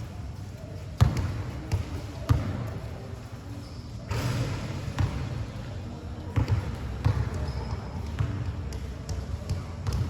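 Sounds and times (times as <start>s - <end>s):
basketball bouncing on a court: 1.0s - 3.0s, 4.9s - 5.4s, 6.2s - 10.0s.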